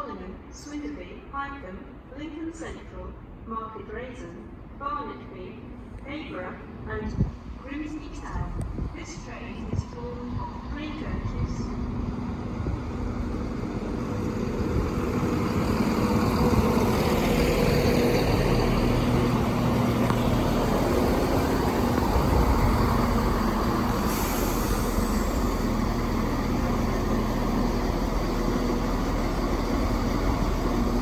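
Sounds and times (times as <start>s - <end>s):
diesel train engine and wheels: 0.0s - 31.0s.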